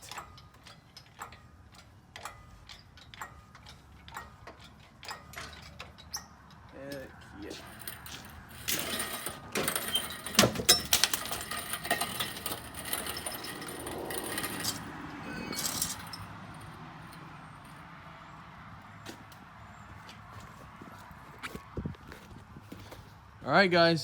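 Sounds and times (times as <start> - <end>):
metal clanks and rattles: 0.0 - 17.8.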